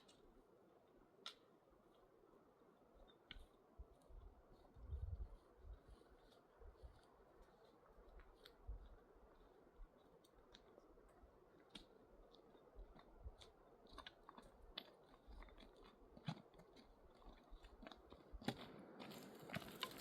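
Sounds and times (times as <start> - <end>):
person chewing food: 5.9 - 20.0.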